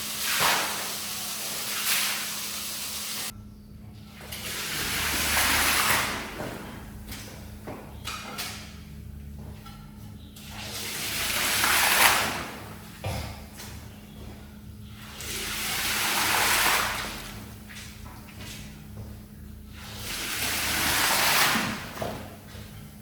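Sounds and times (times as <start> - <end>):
water rushing over rug: 4.4 - 6.7, 10.6 - 12.7, 15.0 - 17.4, 19.8 - 22.2.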